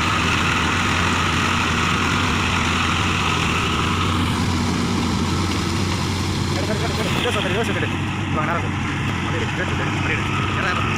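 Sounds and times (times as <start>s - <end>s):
tractor diesel engine running: 0.0s - 10.9s.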